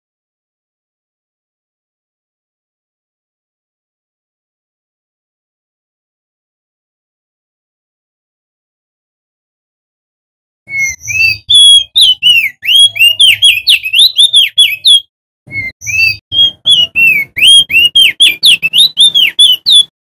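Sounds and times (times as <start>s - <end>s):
songbird singing whistled notes: 10.7s - 20.0s.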